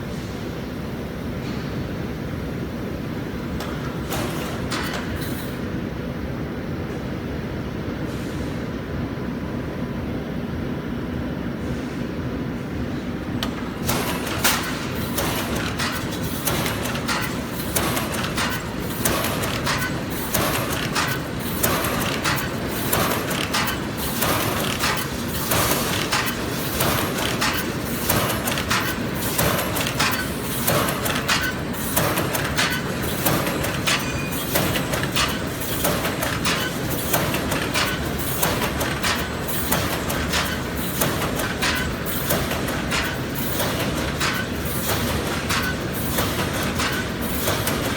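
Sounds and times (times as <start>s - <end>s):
sharp mechanical clanks: 13.4s - 47.9s
welding machine hum: 13.4s - 47.9s.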